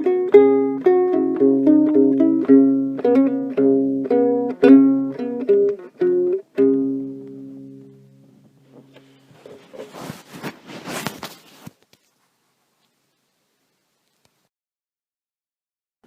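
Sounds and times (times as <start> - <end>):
ukulele plucked chords: 0.0 - 9.2.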